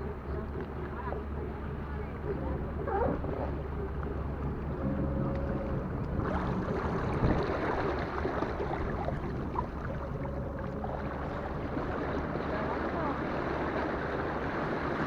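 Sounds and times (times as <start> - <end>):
electric outboard motor humming: 0.0 - 15.0
water noise: 0.0 - 15.0
wind on microphone: 5.2 - 12.6.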